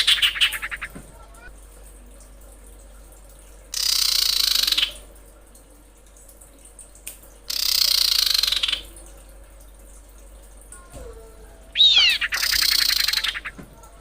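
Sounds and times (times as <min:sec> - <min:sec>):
bird rattling calls: 0:00.0 - 0:00.9, 0:03.8 - 0:04.9, 0:07.5 - 0:08.8, 0:11.8 - 0:13.6.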